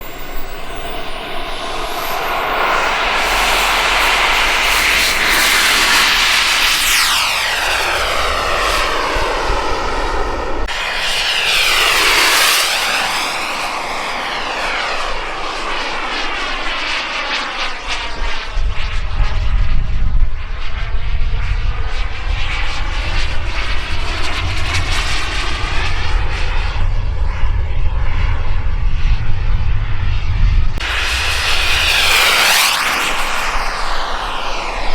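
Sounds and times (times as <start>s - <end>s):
low rumble: 0.0s - 10.7s, 25.2s - 34.9s
model jet turbine whine passing: 0.0s - 34.9s.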